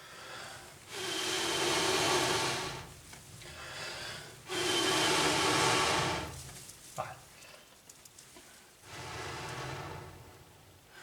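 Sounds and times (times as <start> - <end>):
person blowing long breaths: 0.0 - 2.9, 3.5 - 6.4, 8.9 - 11.0.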